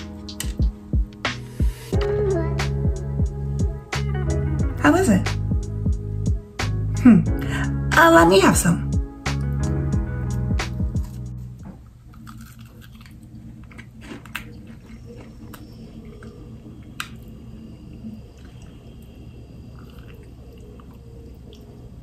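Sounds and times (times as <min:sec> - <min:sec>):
steady low hum: 0:00.0 - 0:08.0, 0:08.7 - 0:22.0
person chewing a cookie: 0:10.9 - 0:11.3, 0:12.0 - 0:22.0.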